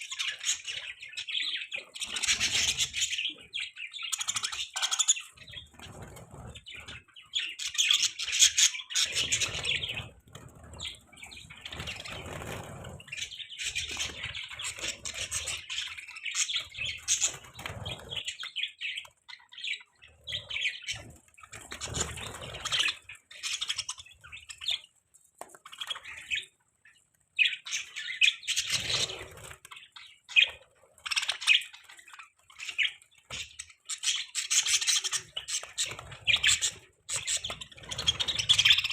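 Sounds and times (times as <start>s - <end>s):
budgerigars chirping and warbling: 0.0s - 24.9s, 25.6s - 38.9s
wing flapping: 8.2s - 15.9s.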